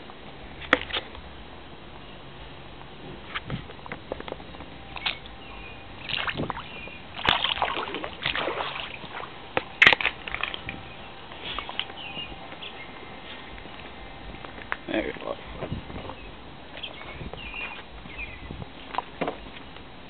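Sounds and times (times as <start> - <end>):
floodwater sloshing and splashing: 6.0 - 10.8.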